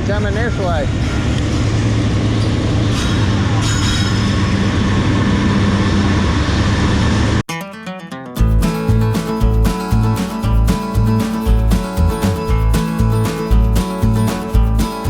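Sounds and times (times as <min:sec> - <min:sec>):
faint high squeal: 0:02.4 - 0:04.7.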